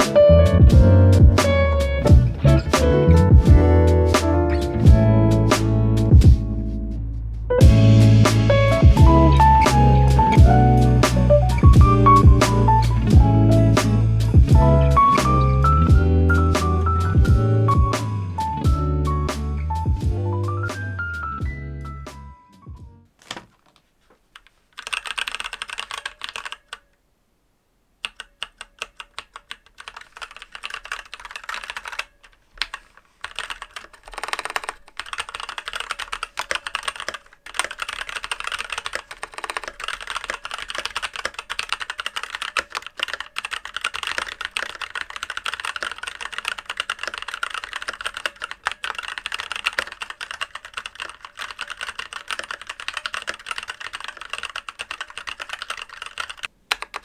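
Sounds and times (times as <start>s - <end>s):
mechanical keyboard key clacks: 24.4s - 26.8s, 28.0s - 57.0s.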